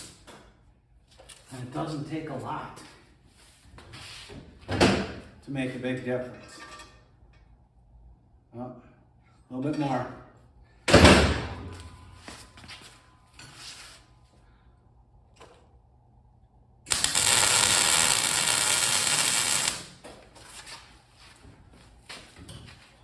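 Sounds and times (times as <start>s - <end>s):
welder arc crackling: 16.9s - 20.0s.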